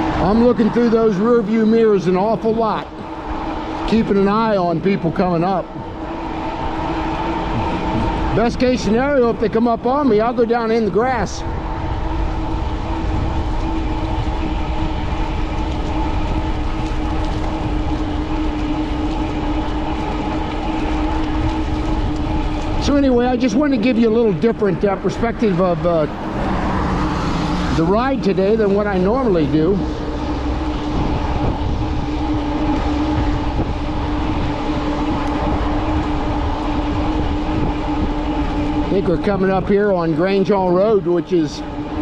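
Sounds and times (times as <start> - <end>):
bike tyres and drive droning: 0.0 - 42.0
steady hum: 0.0 - 42.0
wind rumbling on microphone: 0.0 - 42.0.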